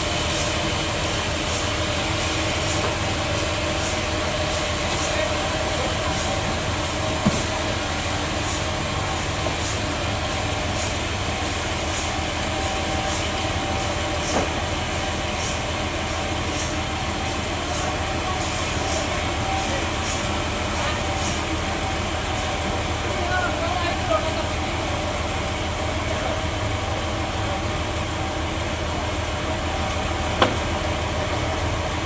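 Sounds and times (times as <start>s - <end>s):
sawmill machinery humming: 0.0s - 32.0s.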